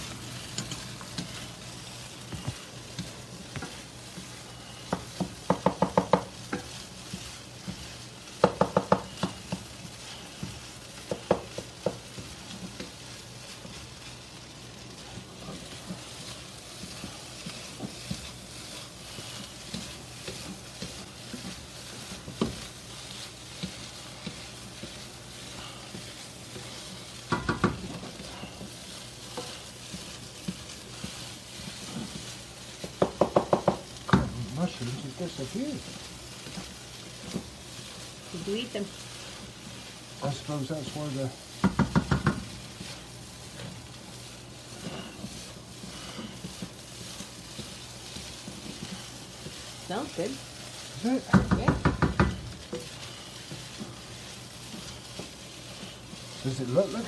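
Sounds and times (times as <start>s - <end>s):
rice sizzling in a wok: 0.0s - 57.0s
spatula scraping a wok: 0.0s - 57.0s
sharp taps against pan: 4.9s - 6.6s, 8.4s - 9.6s, 11.1s - 12.0s, 27.3s - 27.8s, 32.9s - 34.3s, 41.6s - 42.5s, 51.3s - 52.4s.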